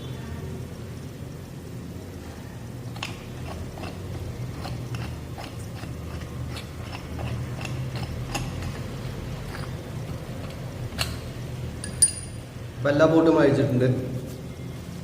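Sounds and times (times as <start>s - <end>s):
low steady hum: 0.0s - 15.0s
wrench clicking on bolts: 4.6s - 12.4s.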